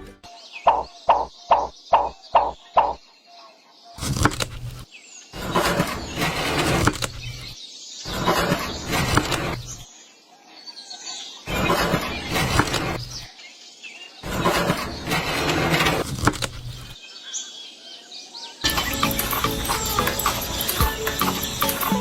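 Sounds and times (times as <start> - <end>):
knocks: 0.7 - 3.0.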